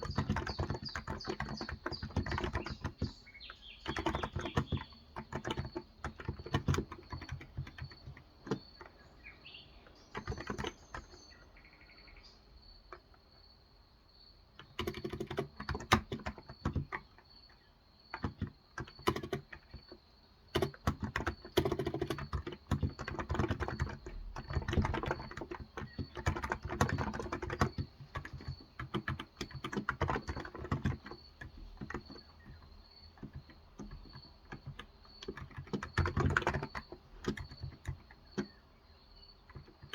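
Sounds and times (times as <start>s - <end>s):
typing on a keyboard: 0.0s - 9.2s, 9.8s - 11.5s, 14.5s - 39.9s
faint bird chirps: 0.0s - 15.8s, 21.3s - 39.9s.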